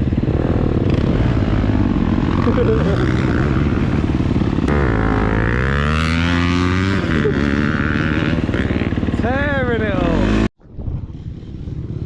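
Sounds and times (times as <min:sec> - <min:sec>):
motocross bike engine revving: 0:00.0 - 0:10.5.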